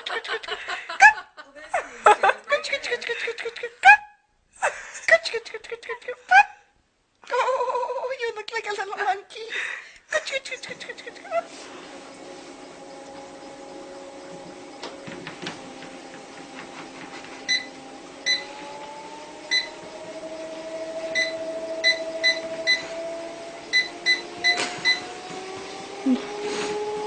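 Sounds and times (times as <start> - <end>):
steady machine hum: 10.4 - 27.0.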